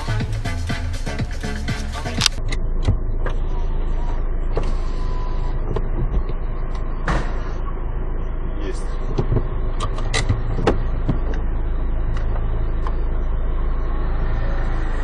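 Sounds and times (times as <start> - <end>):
background music with a beat: 0.0 - 2.4
car engine and cabin rumble: 0.0 - 15.0.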